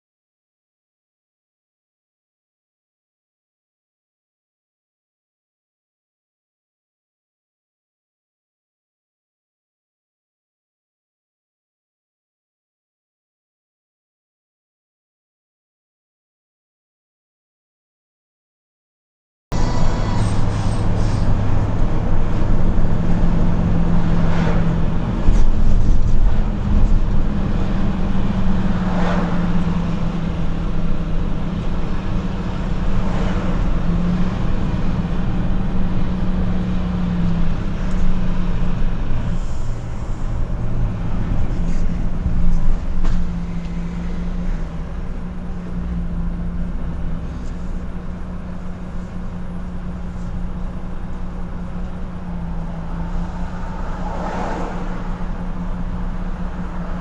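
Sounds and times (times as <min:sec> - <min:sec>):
road noise: 0:19.5 - 0:57.0
truck engine droning: 0:19.5 - 0:57.0.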